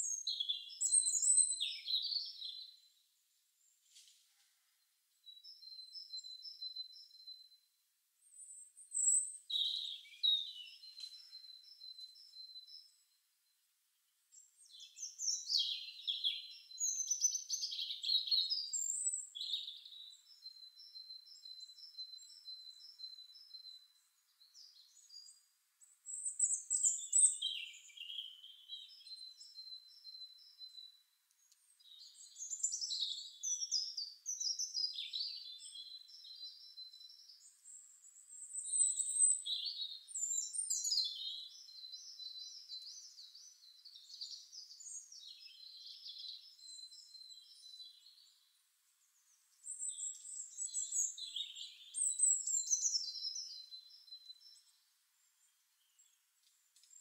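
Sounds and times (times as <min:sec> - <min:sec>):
birds singing and chirping: 0:00.0 - 0:02.9, 0:05.3 - 0:07.5, 0:08.2 - 0:13.0, 0:14.3 - 0:48.5, 0:49.1 - 0:57.0.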